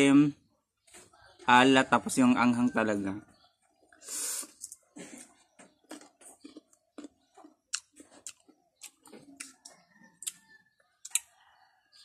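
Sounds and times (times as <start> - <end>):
person chewing crisp mango: 4.4 - 11.3.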